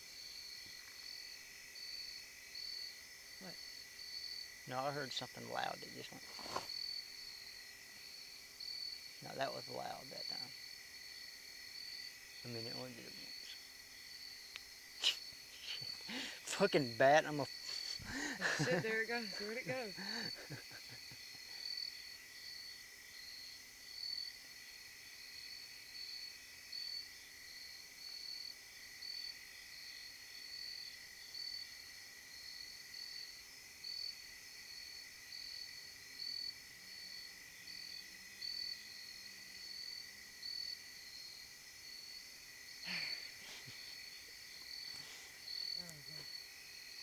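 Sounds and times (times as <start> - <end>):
insects chirping: 0.0 - 47.0
low insect drone: 0.0 - 47.0.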